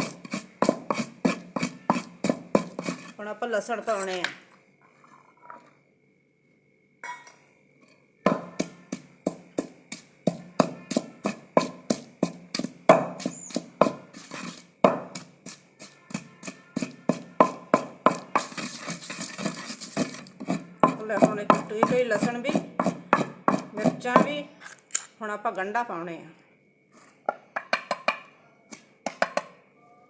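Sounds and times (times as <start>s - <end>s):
pestle pounding in mortar: 0.0s - 3.2s, 8.3s - 24.5s, 29.0s - 29.5s.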